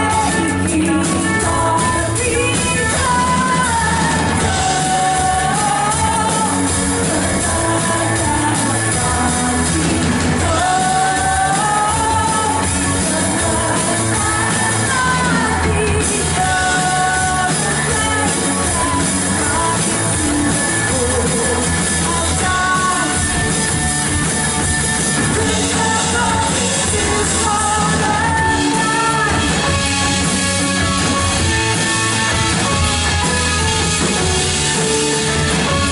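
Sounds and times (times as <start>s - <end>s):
people singing: 0.0s - 23.2s, 25.3s - 29.6s
live rock band playing: 0.0s - 35.9s.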